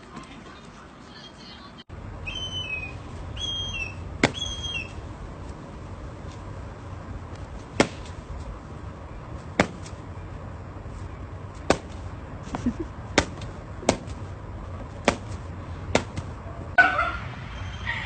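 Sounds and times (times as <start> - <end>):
low steady hum: 0.0 - 18.0
sharp knocks: 9.6 - 9.9.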